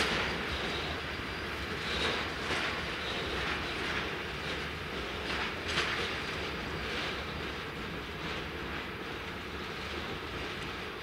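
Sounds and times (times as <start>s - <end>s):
train rumbling past: 0.0s - 11.0s
wheels clicking over rail joints: 0.0s - 11.0s.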